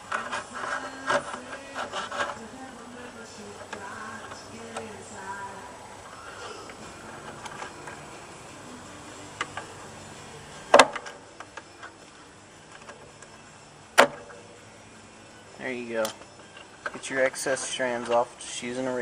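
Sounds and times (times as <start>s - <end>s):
razor blade scratching fiberglass: 0.1s - 2.5s.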